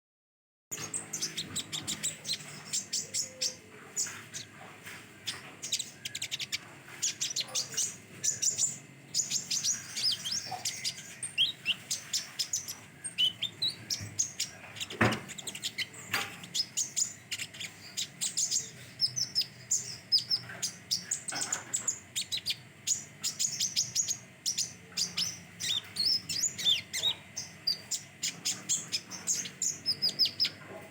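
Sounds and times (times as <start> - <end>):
bird chirping and twittering: 0.7 - 30.9.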